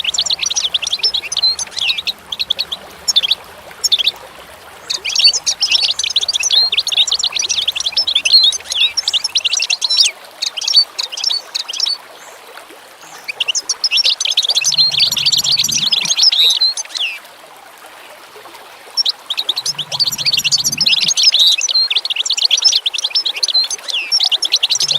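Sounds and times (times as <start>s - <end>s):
small birds chirping: 0.0s - 10.6s, 13.2s - 16.9s, 19.3s - 24.9s.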